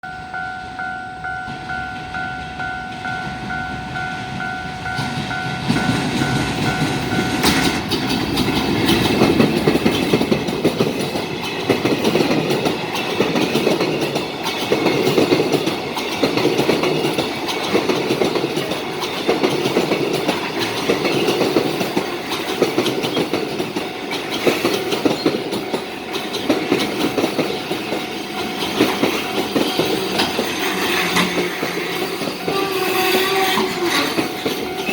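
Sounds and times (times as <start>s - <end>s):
pulsing ringing tone: 0.0s - 7.8s
train wheels clattering: 0.6s - 34.9s.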